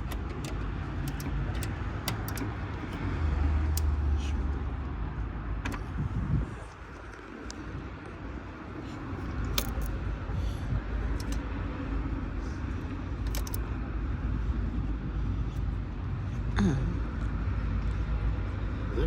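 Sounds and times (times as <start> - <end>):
metallic clicks of hand tools: 0.0 - 3.1, 9.4 - 9.9, 11.2 - 11.4, 13.2 - 13.6
steady low rumble: 0.0 - 19.0.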